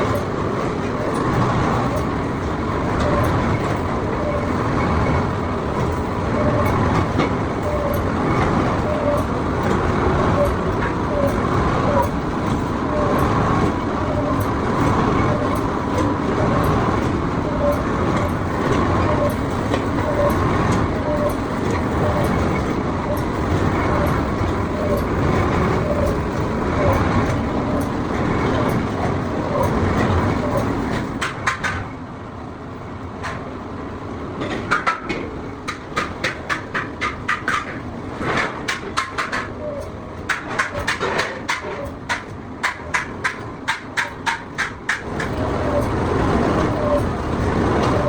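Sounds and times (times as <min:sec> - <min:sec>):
workshop machinery running: 0:00.0 - 0:48.0
workshop background noise: 0:34.4 - 0:48.0
sharp knocks on metal: 0:40.3 - 0:45.4.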